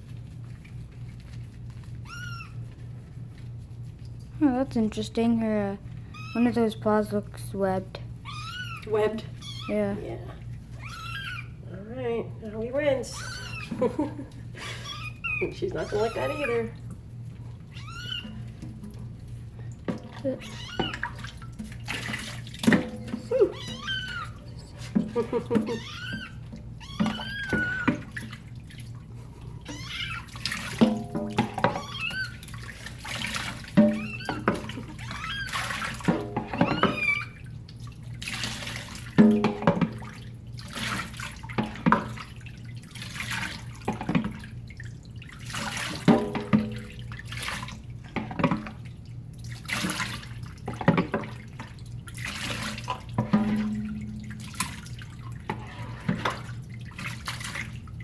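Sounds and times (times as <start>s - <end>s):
kitten crying: 2.0s - 2.6s, 6.1s - 6.4s, 8.2s - 9.8s, 10.8s - 11.6s, 13.1s - 13.8s, 14.7s - 16.7s, 17.7s - 18.4s, 20.4s - 21.1s, 23.2s - 24.4s, 25.5s - 28.0s, 29.7s - 30.4s, 31.7s - 32.4s, 33.9s - 35.7s, 36.6s - 37.4s
water splashing and pouring: 15.5s - 58.0s.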